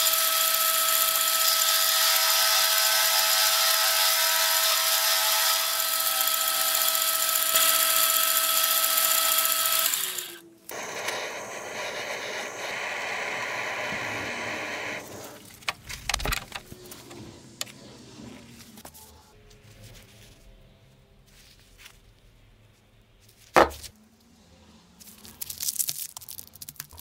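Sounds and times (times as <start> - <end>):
machine tool cutting metal: 0.0 - 15.4.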